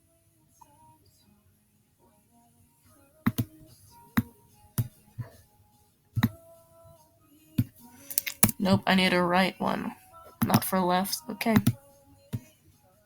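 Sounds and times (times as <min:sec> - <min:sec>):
computer mouse clicking: 0:08.1 - 0:08.7.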